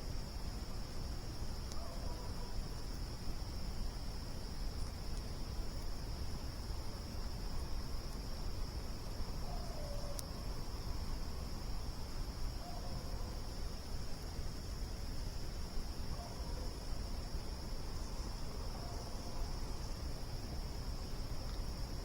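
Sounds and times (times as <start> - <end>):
crickets trilling: 0.0 - 22.0
campfire clicks: 4.7 - 6.0.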